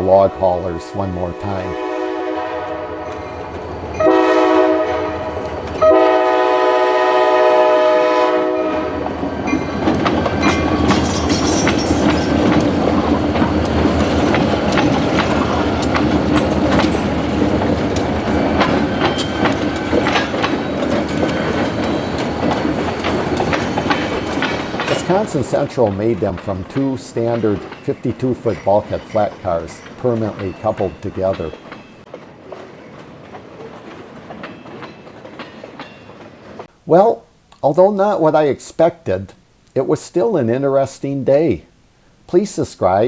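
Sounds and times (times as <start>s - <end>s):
locomotive horn blasts: 0.0s - 3.2s, 4.0s - 9.0s
freight train rumbling past: 0.0s - 37.0s
wheels clicking over rail joints: 9.5s - 36.7s.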